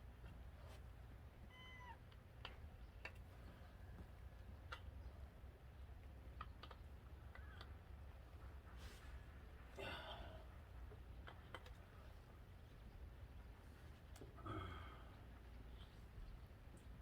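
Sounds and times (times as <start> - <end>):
cat meowing faintly: 1.5 - 2.0
faint clicks: 6.0 - 7.8.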